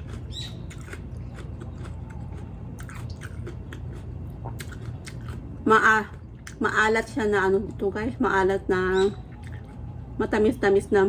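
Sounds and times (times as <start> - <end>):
chewing chili pepper: 0.0 - 6.7.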